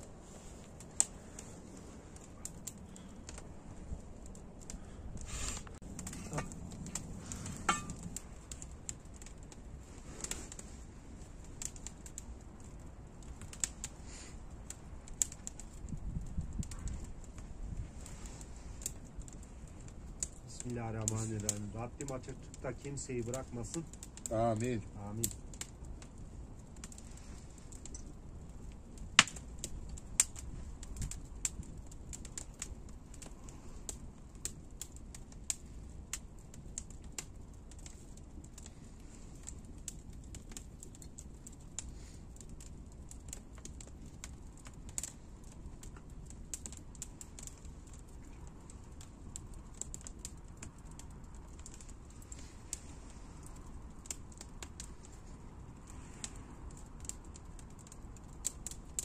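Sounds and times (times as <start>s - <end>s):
low steady rumble: 0.0s - 37.3s
wood fire crackling: 0.0s - 59.0s.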